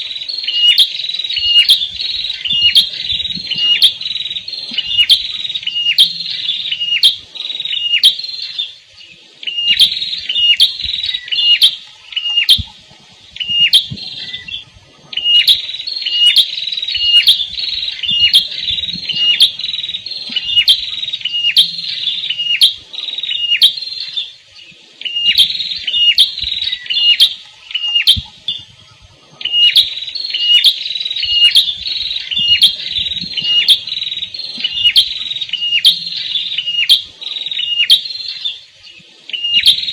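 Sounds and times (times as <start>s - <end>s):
songbird singing sharp high notes: 0.3s - 8.7s, 13.4s - 24.3s, 29.4s - 38.6s.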